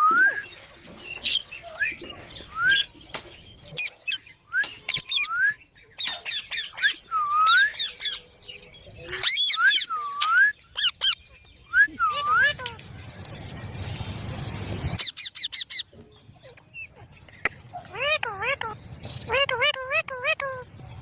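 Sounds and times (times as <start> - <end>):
parrots calling and screeching: 1.2 - 11.4, 14.9 - 20.7.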